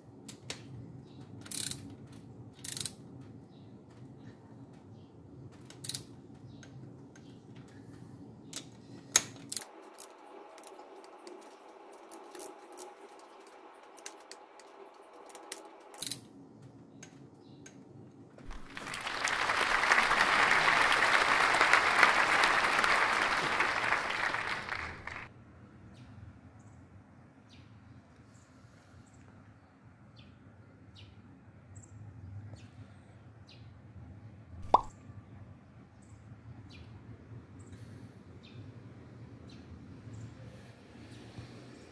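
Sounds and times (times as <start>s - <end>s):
wrench clicking on nuts: 1.4s - 3.0s, 5.6s - 6.2s, 12.0s - 12.9s, 15.2s - 16.3s.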